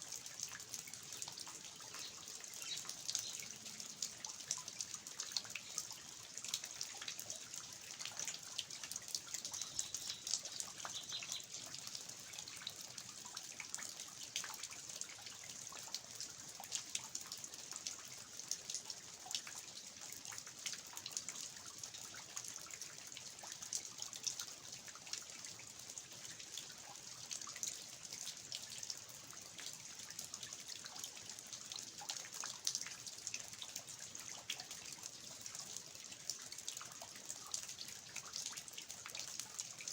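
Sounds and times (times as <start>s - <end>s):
water dripping from eaves: 0.0s - 39.9s
rain falling: 0.6s - 7.7s, 8.3s - 13.4s.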